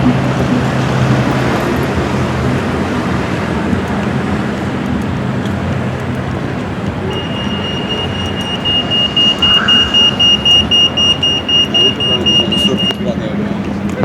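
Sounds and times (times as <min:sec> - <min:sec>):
city street traffic: 0:00.0 - 0:14.0
high-pitched electronic beeping: 0:07.1 - 0:13.0.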